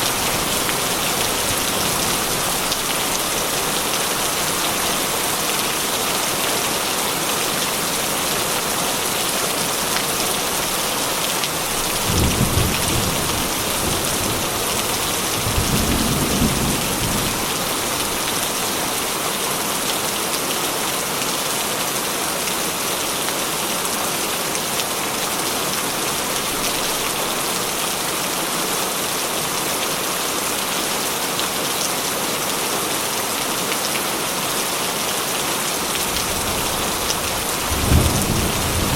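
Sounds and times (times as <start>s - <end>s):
heavy rain on a metal roof: 0.0s - 38.9s
low rolls of thunder: 12.0s - 17.7s, 36.2s - 38.9s.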